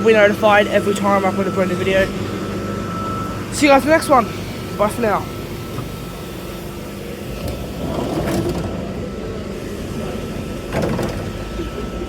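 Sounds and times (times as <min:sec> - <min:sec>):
faint steady whine: 0:00.0 - 0:12.0
standing train rumble: 0:00.0 - 0:12.0.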